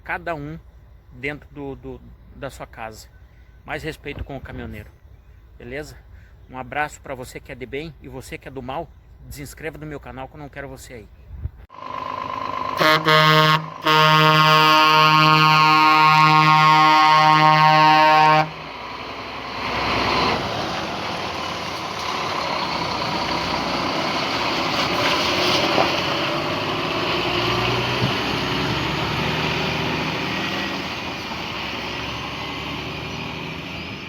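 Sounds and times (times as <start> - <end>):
road noise: 0.0 - 34.0
heavy truck engine running: 11.7 - 14.5, 17.3 - 34.0.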